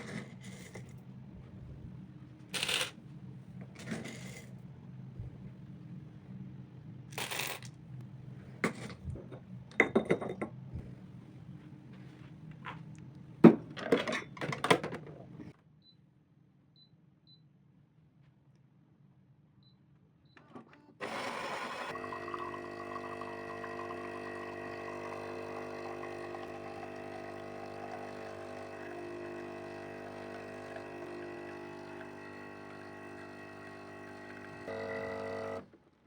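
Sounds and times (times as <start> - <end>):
kitchenware clinking and scraping: 3.7 - 4.6, 13.7 - 15.4.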